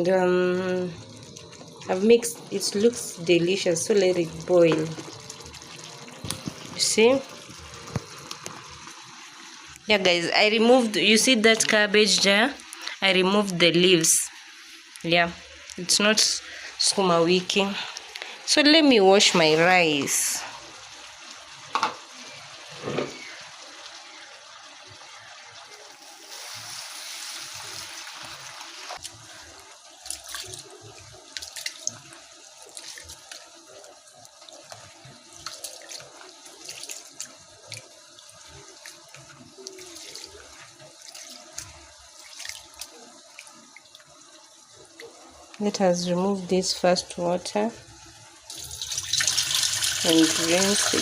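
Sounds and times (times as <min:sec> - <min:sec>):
water pouring with splashing hiss: 0:17.5 - 0:45.6, 0:48.0 - 0:51.0.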